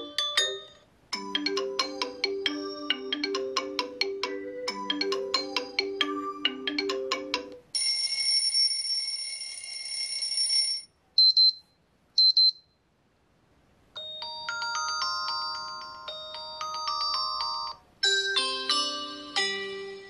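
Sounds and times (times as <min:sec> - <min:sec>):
chime-like melody: 0:00.0 - 0:07.5, 0:14.0 - 0:20.0
mallet-like phone melody: 0:00.0 - 0:07.6, 0:14.0 - 0:20.0
high double beeps: 0:11.2 - 0:12.7.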